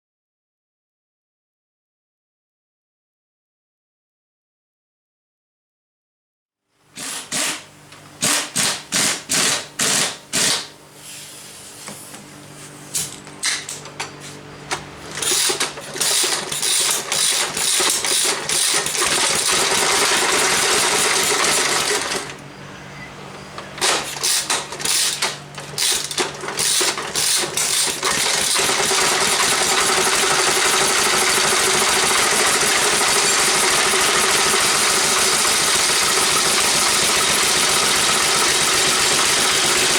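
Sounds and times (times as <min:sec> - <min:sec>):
small engine starting and running: 0:06.8 - 0:11.0, 0:12.9 - 0:39.9.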